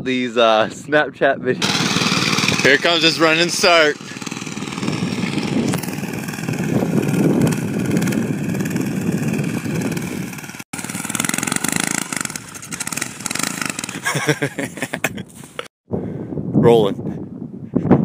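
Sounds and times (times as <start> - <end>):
small engine running: 1.6 - 14.6.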